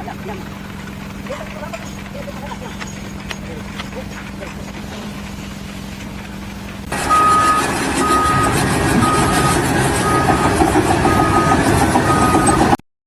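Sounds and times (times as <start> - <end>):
heavy vehicle engine rumble: 0.0 - 12.8
reversing alarm beeping: 6.9 - 12.8.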